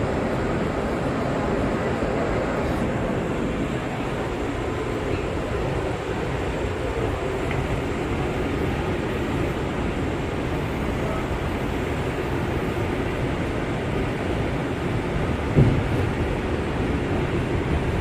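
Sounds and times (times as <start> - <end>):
subway train wheels rumbling: 0.0 - 18.0.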